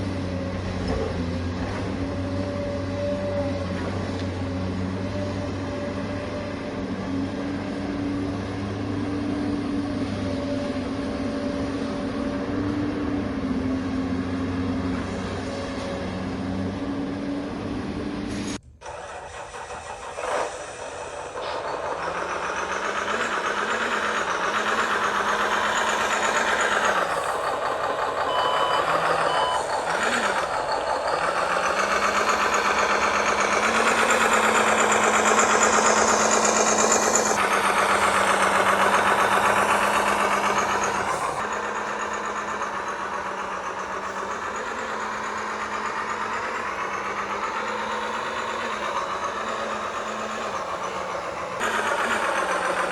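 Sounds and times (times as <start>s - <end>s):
engine-like drone: 0.0s - 52.9s
reversing beeps: 28.2s - 30.2s.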